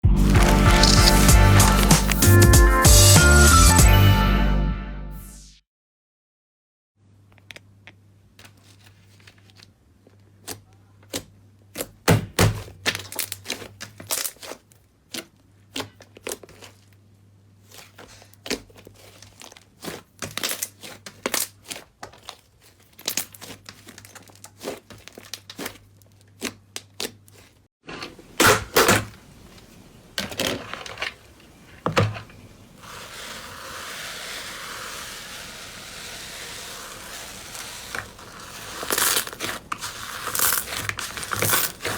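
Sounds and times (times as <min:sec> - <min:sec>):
slime squelching by hand: 0:00.1 - 0:02.5, 0:13.0 - 0:17.0, 0:17.6 - 0:27.6, 0:29.2 - 0:41.9
steady hiss: 0:30.9 - 0:41.7.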